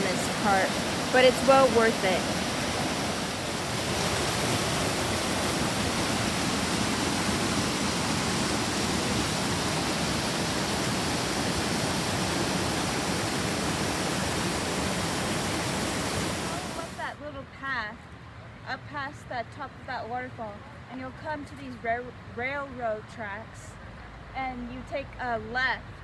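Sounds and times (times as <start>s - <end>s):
waterfall rushing: 0.0s - 17.2s.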